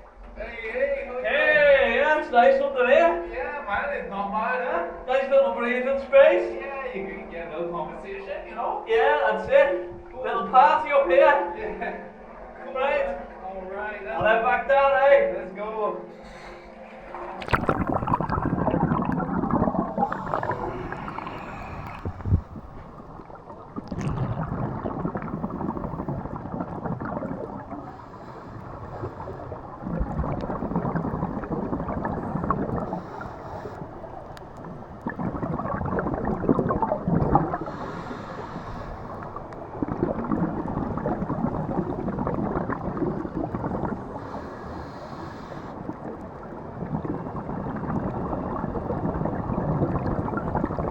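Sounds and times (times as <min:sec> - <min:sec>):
diver inhaling through regulator: 0:16.1 - 0:34.8, 0:35.4 - 0:42.1, 0:43.3 - 0:46.0
exhaled bubbles gurgling: 0:16.1 - 0:50.9.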